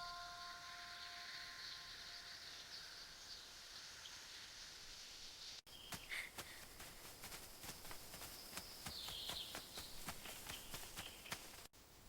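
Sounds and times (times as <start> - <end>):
high-pitched insect drone: 0.0 - 5.6
bird chirp: 0.0 - 11.7.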